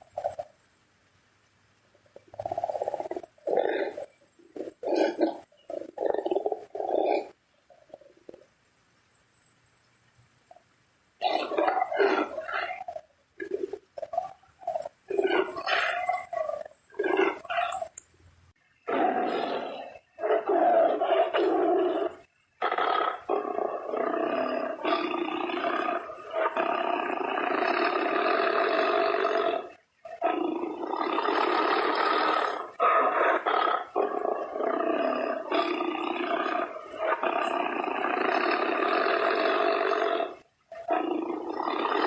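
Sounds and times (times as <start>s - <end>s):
tiger roaring: 11.2s - 17.9s, 18.9s - 42.0s.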